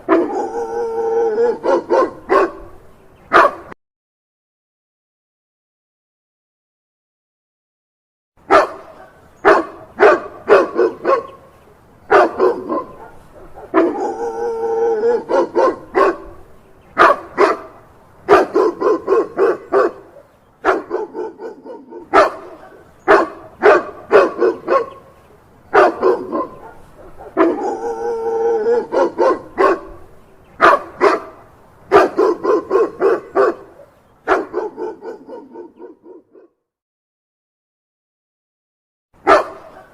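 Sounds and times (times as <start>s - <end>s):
dog barking: 0.1s - 0.7s, 1.3s - 3.8s, 8.5s - 11.4s, 12.1s - 14.4s, 15.0s - 16.4s, 17.0s - 25.1s, 25.7s - 27.9s, 28.6s - 36.6s, 39.2s - 39.9s.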